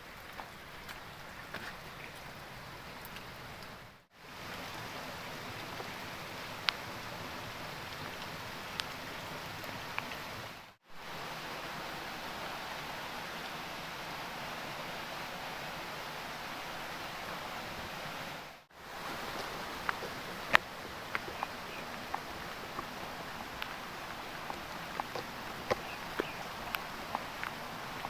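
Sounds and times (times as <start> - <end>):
heavy rain hiss: 3.4 - 28.0
sharp drips: 19.2 - 28.0.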